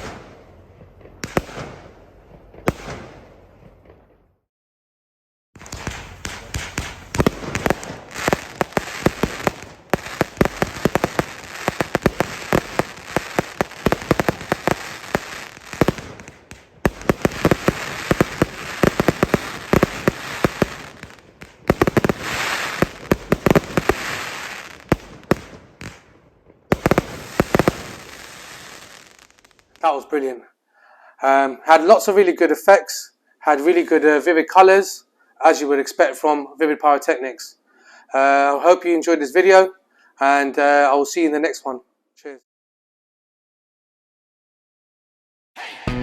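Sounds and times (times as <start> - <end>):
firework crackling: 0.0 - 4.0, 5.6 - 29.9
firework volleys: 0.0 - 4.0, 5.6 - 29.8.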